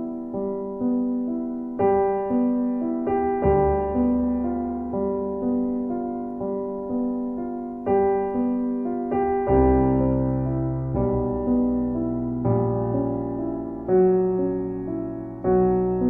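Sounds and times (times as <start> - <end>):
gentle solo piano: 0.0 - 16.0.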